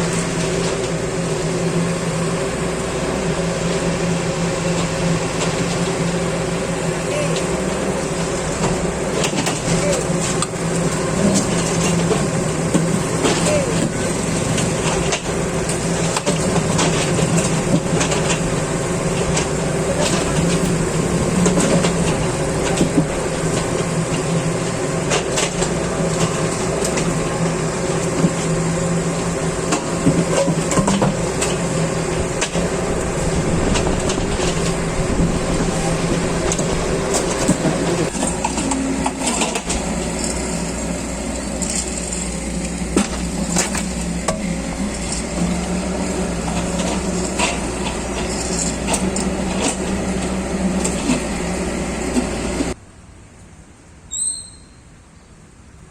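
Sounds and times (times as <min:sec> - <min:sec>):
machinery engine hum: 0:00.0 - 0:54.1.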